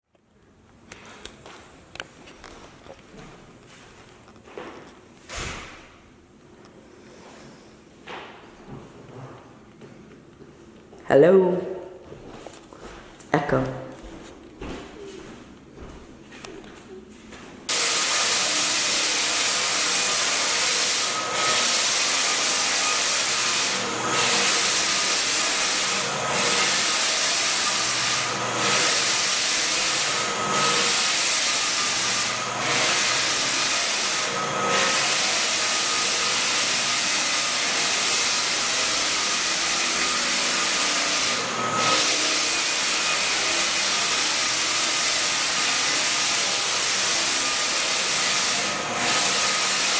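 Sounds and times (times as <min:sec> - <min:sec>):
floor sanding machine hissing: 0:06.8 - 0:08.0, 0:17.7 - 0:49.9.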